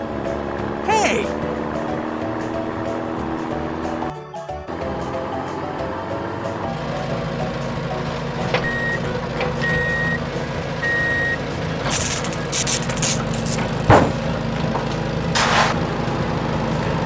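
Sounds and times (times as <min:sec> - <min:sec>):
reversing beeps: 0:08.6 - 0:09.0, 0:10.8 - 0:11.4
hissing and clattering burst: 0:11.9 - 0:14.0, 0:15.4 - 0:15.8.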